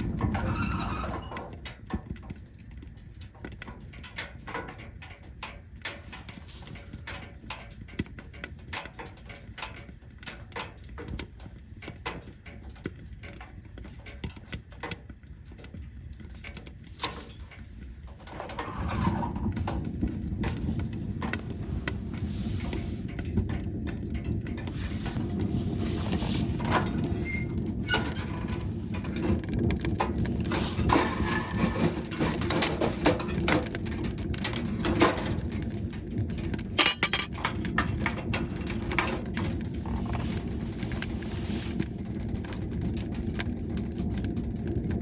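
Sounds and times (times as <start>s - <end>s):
firewood crackling: 0.0s - 45.0s
low steady rush: 19.5s - 29.3s.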